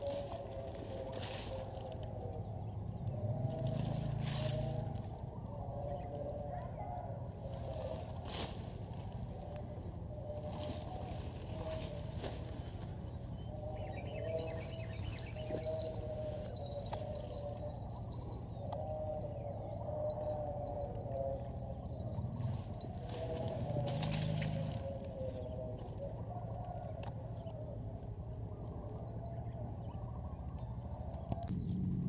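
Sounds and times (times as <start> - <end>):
insects trilling: 0.0 - 32.0
low wavering call: 13.3 - 27.6.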